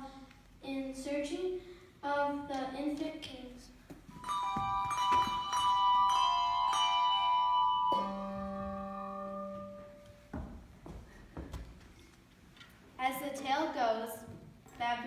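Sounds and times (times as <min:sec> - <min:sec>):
tuned bells ringing: 0:04.2 - 0:10.0
lower bell ringing: 0:04.2 - 0:10.2.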